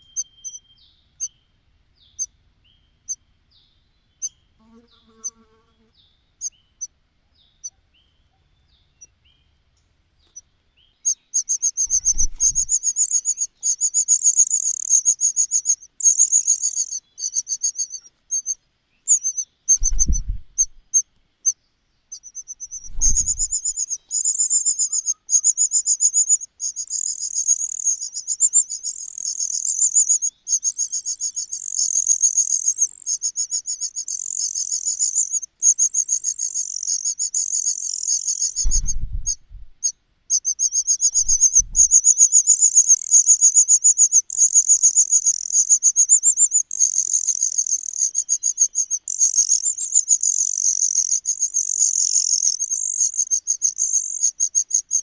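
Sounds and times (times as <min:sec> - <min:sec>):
nestlings chirping: 0:11.0 - 0:21.0, 0:22.1 - 0:55.0
chicks begging calls: 0:11.4 - 0:18.5, 0:22.6 - 0:28.0, 0:40.4 - 0:43.2
dull low thumps: 0:11.9 - 0:12.7, 0:19.8 - 0:20.9, 0:22.8 - 0:23.8, 0:38.6 - 0:39.9, 0:41.1 - 0:42.0.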